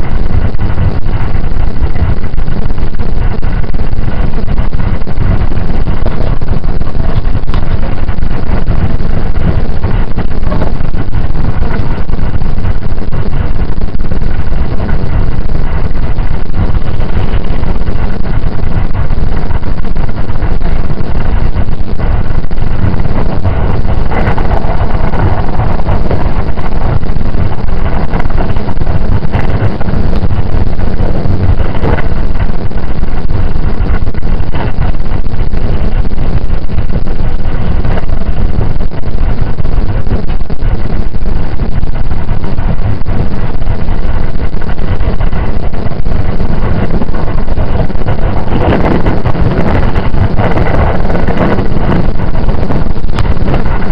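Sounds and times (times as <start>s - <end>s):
train wheels rumbling on rails: 0.0s - 53.9s.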